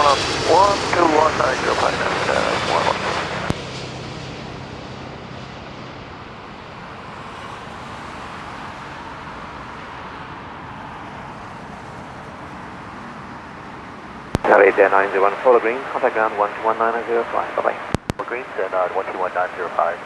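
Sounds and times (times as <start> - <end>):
airport background noise: 0.0 - 3.6, 14.4 - 20.0
radio transmission click: 0.0 - 3.6, 14.4 - 20.0
distant jet engines roaring: 0.0 - 11.8, 14.4 - 20.0.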